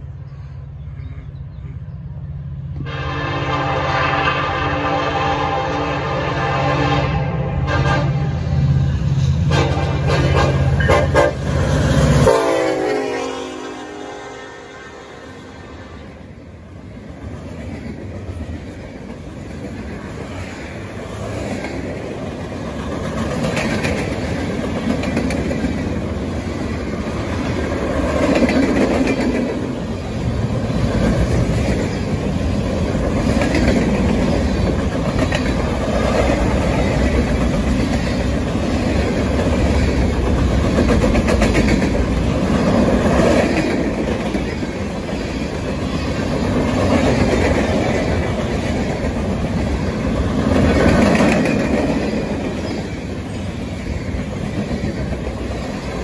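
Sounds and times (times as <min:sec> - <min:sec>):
steel train wheels roaring: 0:00.0 - 0:56.0
wheels clacking over rail joints: 0:17.4 - 0:56.0.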